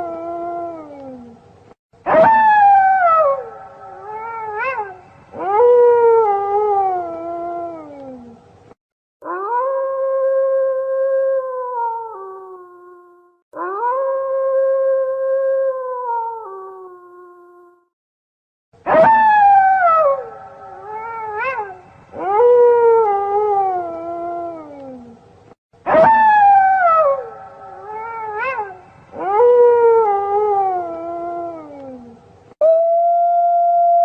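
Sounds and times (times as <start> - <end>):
wolf pack howling: 2.1 - 8.4, 25.9 - 33.0.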